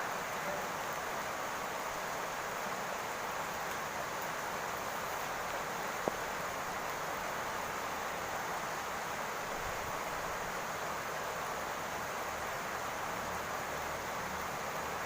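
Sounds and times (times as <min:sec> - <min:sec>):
rain falling on a roof: 0:00.0 - 0:15.0.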